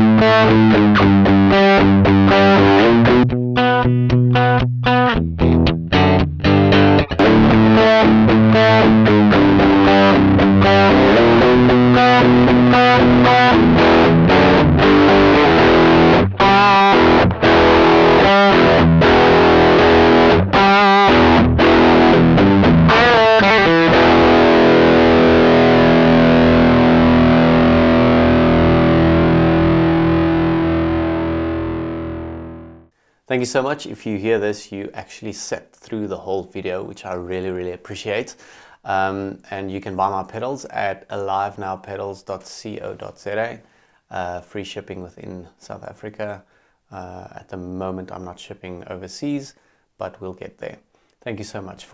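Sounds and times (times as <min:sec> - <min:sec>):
distorted electric guitar: 0:00.0 - 0:32.9.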